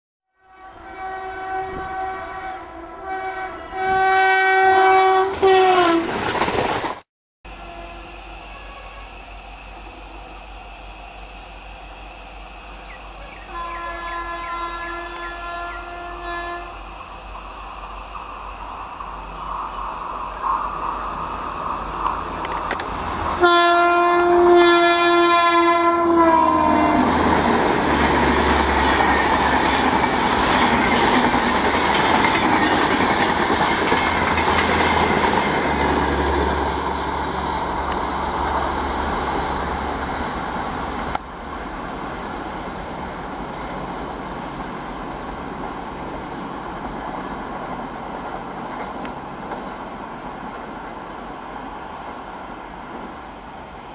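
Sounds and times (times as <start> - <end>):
train air horn: 0.3 - 6.1, 7.5 - 10.3, 13.2 - 16.8, 22.9 - 27.5
train coaches rumbling past: 0.4 - 53.9.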